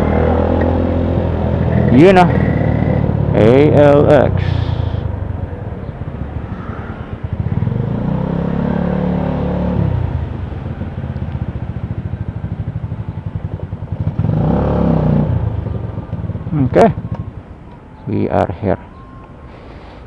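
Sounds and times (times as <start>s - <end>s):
motorcycle engine running: 0.0s - 5.1s, 7.2s - 17.6s.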